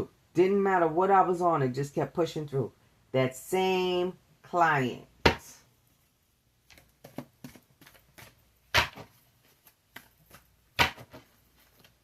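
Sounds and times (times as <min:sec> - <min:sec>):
cards clicking and tapping: 0:06.7 - 0:12.0.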